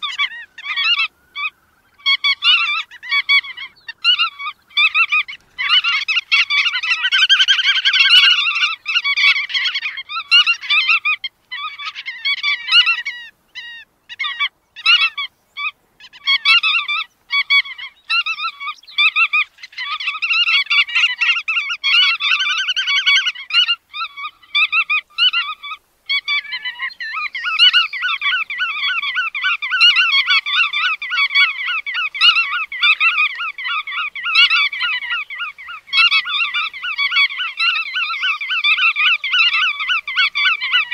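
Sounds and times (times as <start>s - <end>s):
godwits calling: 0.0s - 40.9s.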